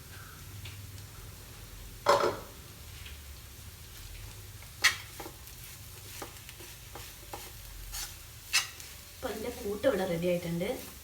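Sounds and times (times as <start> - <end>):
low sizzle: 0.0 - 11.0
spoon stirring thick mixture: 4.8 - 8.9.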